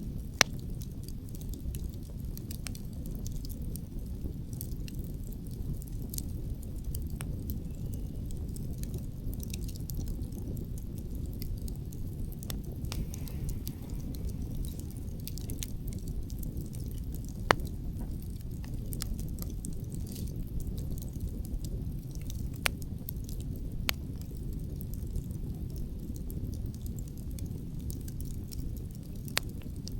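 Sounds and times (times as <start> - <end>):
campfire crackling and popping: 0.0 - 29.9
wind rumble: 7.6 - 25.4.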